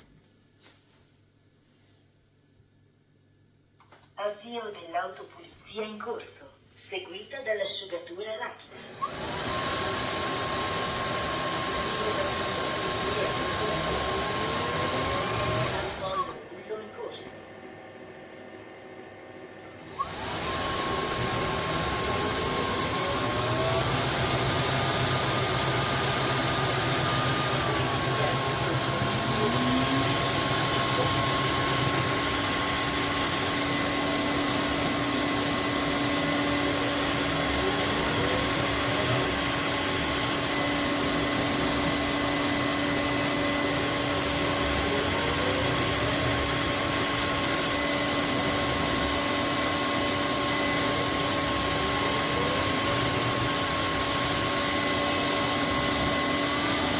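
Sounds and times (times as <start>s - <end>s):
vacuum mop motor humming: 8.7s - 56.9s.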